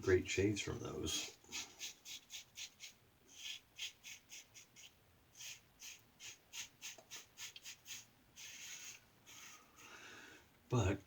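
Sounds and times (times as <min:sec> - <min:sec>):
razor scraping lathered stubble: 0:01.5 - 0:09.6.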